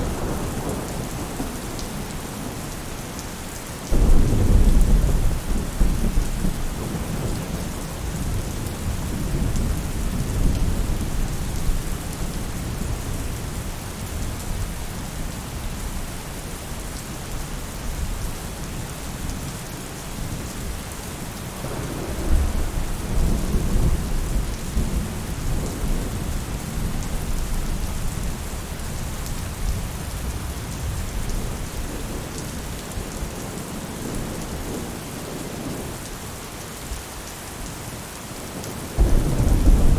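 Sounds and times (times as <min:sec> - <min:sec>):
rain falling on a roof: 0:00.0 - 0:39.9
thunder rumbling: 0:03.9 - 0:11.8, 0:21.6 - 0:26.5, 0:39.0 - 0:39.9.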